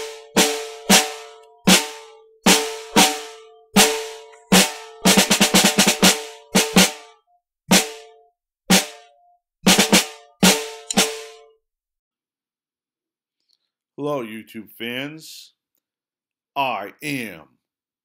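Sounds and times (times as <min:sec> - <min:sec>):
pitched drum hits: 0:00.0 - 0:07.1, 0:07.7 - 0:11.5.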